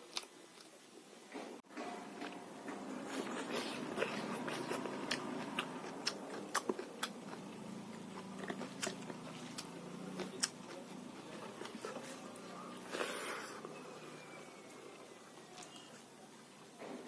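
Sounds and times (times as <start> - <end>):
person chewing crunchy food: 2.1 - 13.8.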